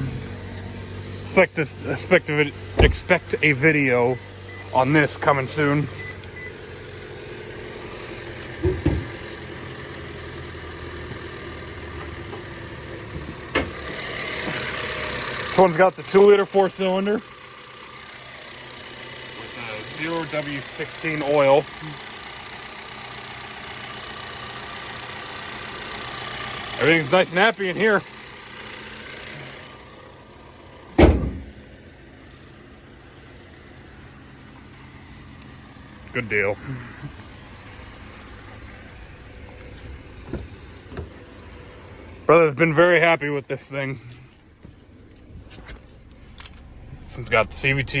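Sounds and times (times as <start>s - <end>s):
car engine idling: 0.0s - 48.0s
loud thumps: 2.8s - 3.1s, 31.0s - 31.6s, 40.2s - 41.2s
car panel slamming shut: 8.6s - 9.2s, 31.0s - 31.6s.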